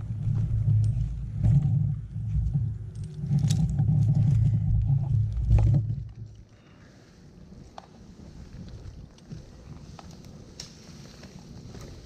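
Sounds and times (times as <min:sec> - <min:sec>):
engine low uneven rumble: 0:00.0 - 0:12.0.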